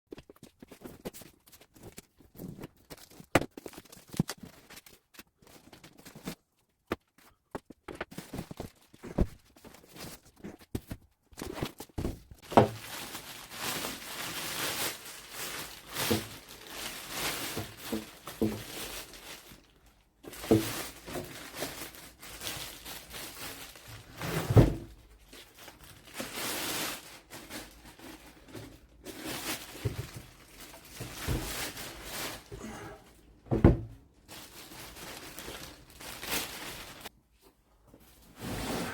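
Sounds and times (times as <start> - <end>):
packaging rustling and tearing: 0.2 - 6.5, 11.4 - 32.7, 34.2 - 37.1
knocks and thuds: 33.5 - 34.0.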